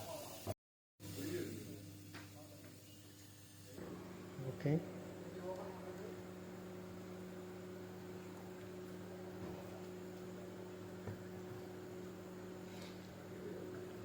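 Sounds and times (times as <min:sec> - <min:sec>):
electrical mains hum: 0:00.1 - 0:14.0.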